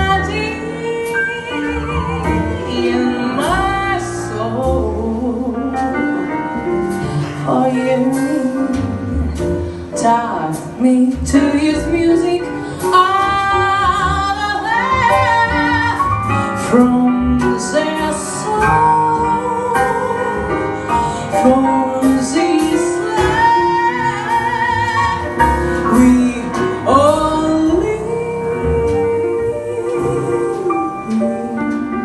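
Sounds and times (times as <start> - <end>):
woman singing with vibrato: 0.0 - 5.9, 7.4 - 9.0, 21.1 - 32.0
jazz band with piano: 0.0 - 32.0.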